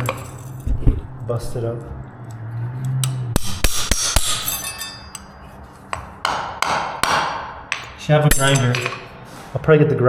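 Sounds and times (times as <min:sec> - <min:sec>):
hammer striking a nail: 0:03.3 - 0:04.7, 0:05.9 - 0:09.2.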